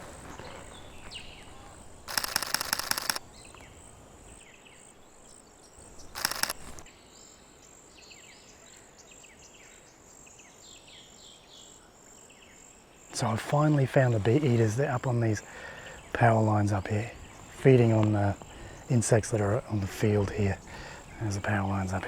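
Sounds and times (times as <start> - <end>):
small birds chirping: 0.0 - 11.8
camera shutter bursts: 2.1 - 3.2, 6.1 - 6.9.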